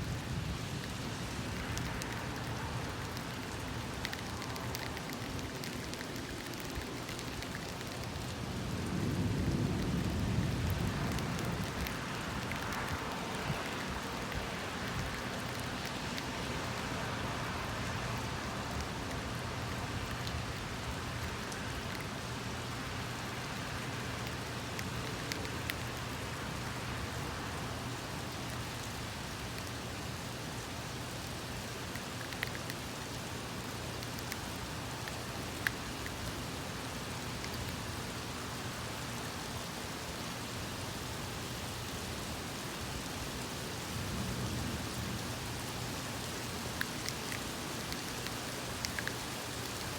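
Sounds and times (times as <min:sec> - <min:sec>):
steady rain hiss: 0:00.0 - 0:49.9
drip ticks: 0:00.8 - 0:29.8, 0:31.2 - 0:36.4, 0:37.1 - 0:38.0, 0:45.2 - 0:49.9.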